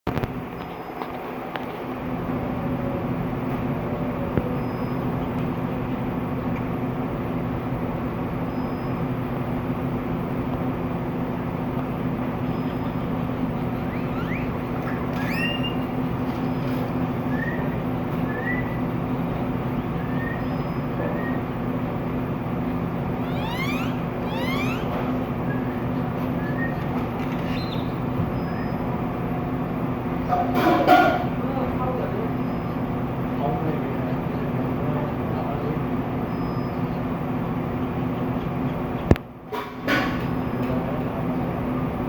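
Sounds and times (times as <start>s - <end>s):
low mechanical hum: 0.1s - 42.0s
small birds chirping: 4.4s - 5.8s, 8.3s - 9.2s, 11.3s - 30.4s, 32.2s - 33.6s, 36.2s - 39.2s
faint high pips: 23.2s - 25.8s.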